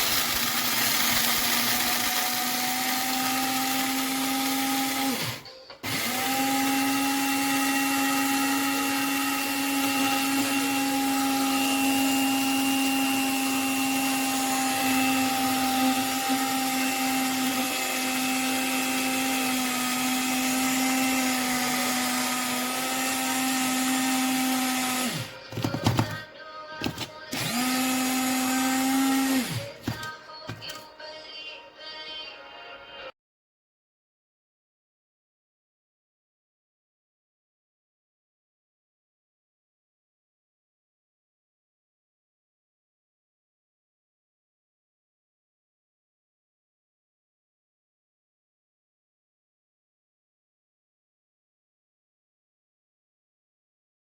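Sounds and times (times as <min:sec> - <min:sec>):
coffee grinder motor humming: 0:00.0 - 0:26.2, 0:26.8 - 0:30.7.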